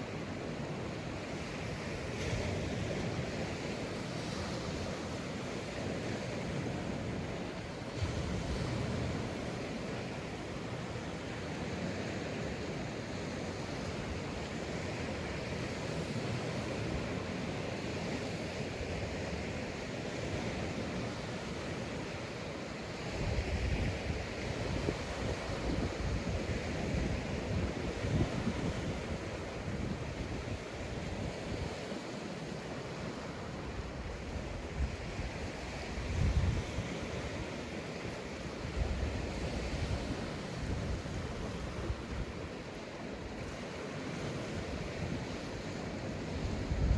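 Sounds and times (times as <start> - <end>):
waves washing on beach: 0.0 - 46.9
wind buffeting microphone: 23.1 - 31.8, 33.9 - 42.5, 44.4 - 46.9.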